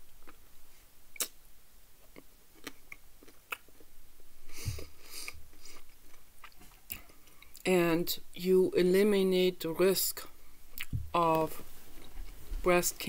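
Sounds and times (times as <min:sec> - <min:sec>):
person chewing chocolate: 0:00.0 - 0:00.5, 0:02.0 - 0:03.9, 0:04.5 - 0:07.7, 0:10.7 - 0:11.0
mouth clicks and crunches: 0:01.1 - 0:01.4, 0:02.0 - 0:03.9, 0:04.7 - 0:07.7, 0:10.7 - 0:11.4.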